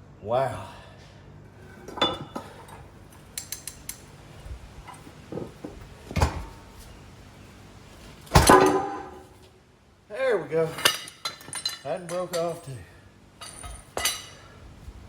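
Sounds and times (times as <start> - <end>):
metal tools clinking on steel: 10.6 - 14.6.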